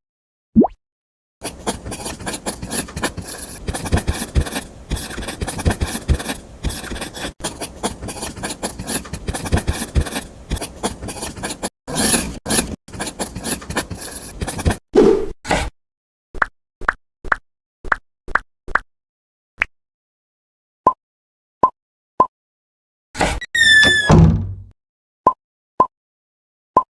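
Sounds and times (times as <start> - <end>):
hand tool scraping rough surface: 11.0 - 14.8.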